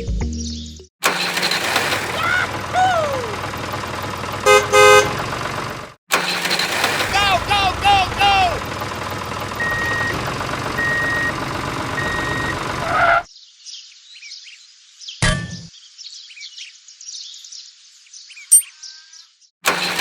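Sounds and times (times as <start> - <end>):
vehicle engine running: 1.0 - 13.1, 19.6 - 20.0
reversing beeper: 9.6 - 11.4, 12.0 - 12.6
birds chirping: 15.8 - 19.5.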